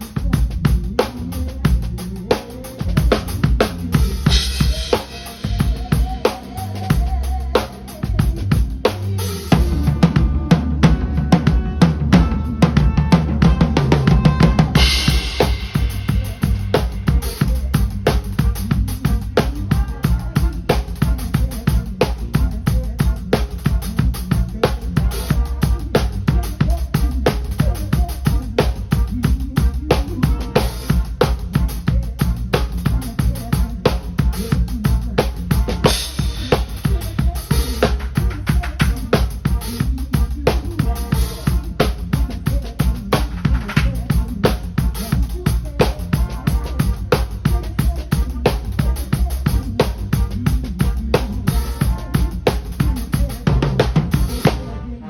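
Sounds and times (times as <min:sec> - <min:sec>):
drum kit beat: 0:00.0 - 0:54.8
bass line: 0:00.0 - 0:55.0
live band playing: 0:00.0 - 0:55.0.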